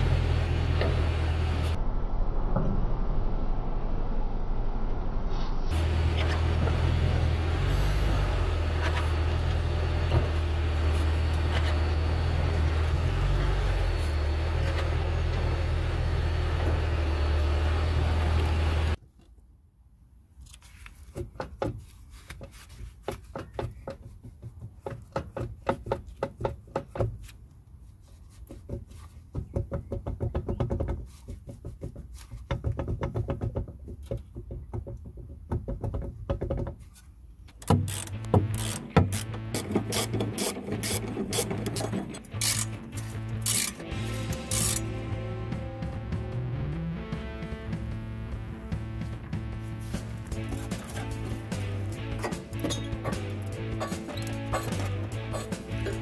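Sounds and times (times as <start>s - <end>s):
differential droning: 0.0s - 19.0s, 37.5s - 56.0s
knocks and clunks of differential housing: 21.0s - 27.3s, 28.4s - 43.8s, 49.2s - 56.0s.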